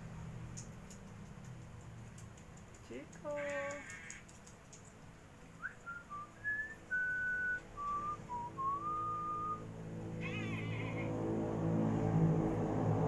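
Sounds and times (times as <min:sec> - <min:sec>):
person whistling a tune: 0:05.6 - 0:09.6
short wavering whistled call: 0:05.6 - 0:09.7.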